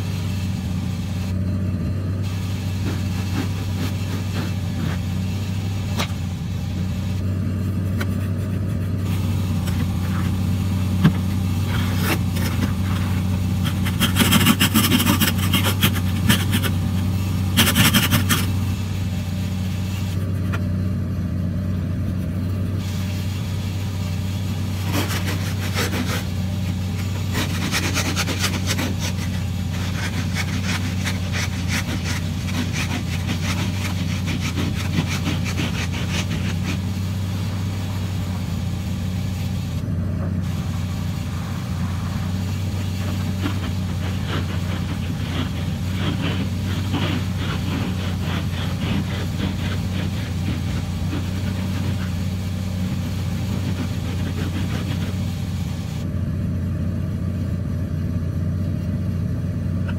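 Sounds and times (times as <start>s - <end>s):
car engine and road drone: 0.0s - 59.9s
dense crackle: 22.1s - 39.8s, 40.4s - 56.0s.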